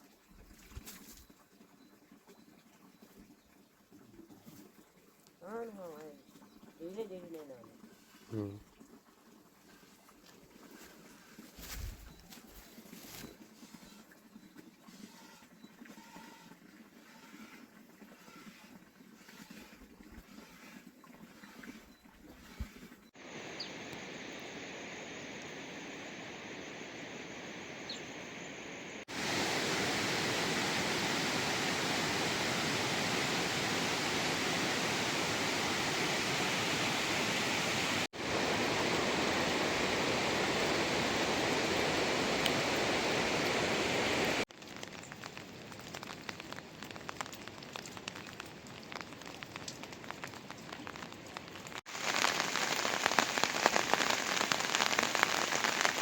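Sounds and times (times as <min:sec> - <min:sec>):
steady rushing water-like noise: 0:23.2 - 0:44.5, 0:51.7 - 0:56.0.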